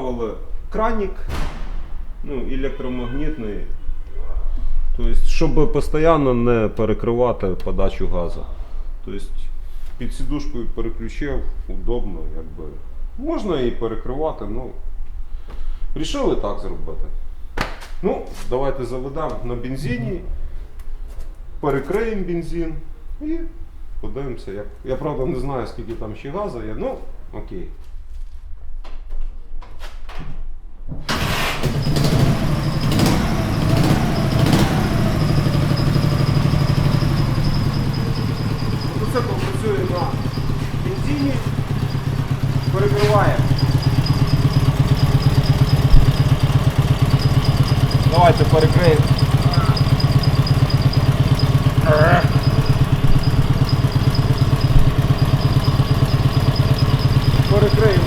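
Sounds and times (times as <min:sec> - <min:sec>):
motorcycle engine starting and idling: 0:31.1 - 0:58.0.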